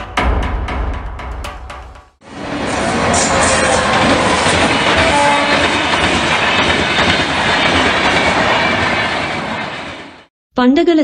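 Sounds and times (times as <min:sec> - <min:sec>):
passenger train passing: 0:02.2 - 0:10.3.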